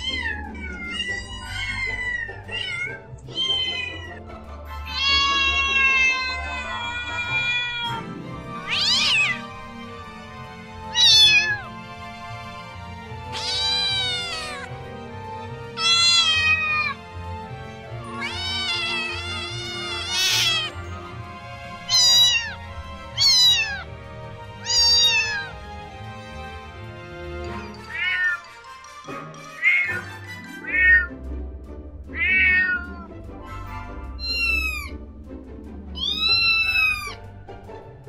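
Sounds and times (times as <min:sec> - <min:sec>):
cats meowing: 0:00.0 - 0:09.5, 0:10.8 - 0:11.8, 0:13.3 - 0:14.7, 0:15.8 - 0:17.1, 0:18.0 - 0:21.0, 0:21.8 - 0:24.0, 0:24.6 - 0:25.6, 0:27.7 - 0:28.6, 0:29.6 - 0:31.2, 0:32.1 - 0:33.1, 0:34.2 - 0:35.0, 0:36.0 - 0:37.2
soft background music: 0:00.0 - 0:38.0.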